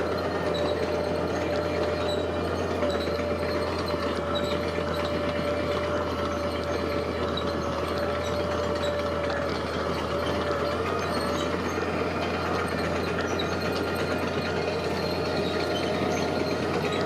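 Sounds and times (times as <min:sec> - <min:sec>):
machinery engine rumble: 0:00.0 - 0:17.0
steady machine whine: 0:00.0 - 0:17.0.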